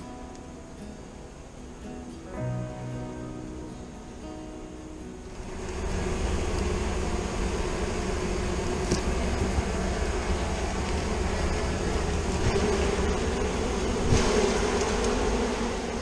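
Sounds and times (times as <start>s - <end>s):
honeybees buzzing: 7.1s - 16.0s.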